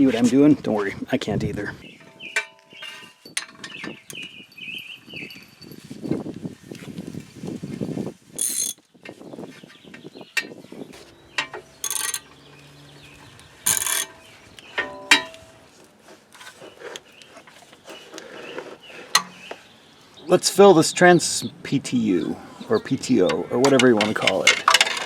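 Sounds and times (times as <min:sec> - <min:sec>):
metal clinks and knocks: 0:02.0 - 0:06.2, 0:10.4 - 0:15.6, 0:23.3 - 0:25.0
hand ratchet clicking: 0:11.4 - 0:12.4, 0:13.6 - 0:14.2.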